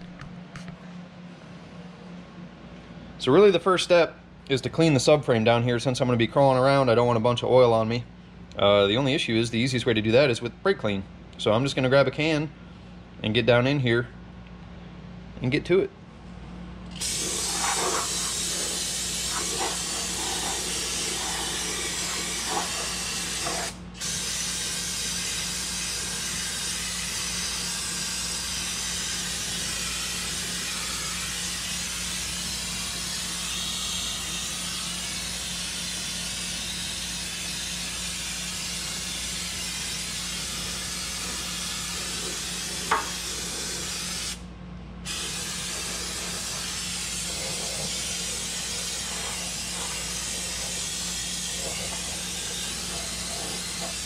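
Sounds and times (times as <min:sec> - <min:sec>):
aerosol spray hissing: 0:17.0 - 0:26.3, 0:37.3 - 0:44.4, 0:45.1 - 0:54.0.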